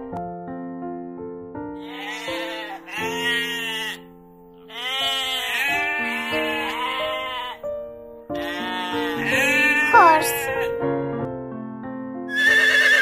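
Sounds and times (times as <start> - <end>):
background music with held notes: 0.0 - 13.0
sheep bleating: 1.8 - 7.7, 8.4 - 10.7, 12.3 - 13.0.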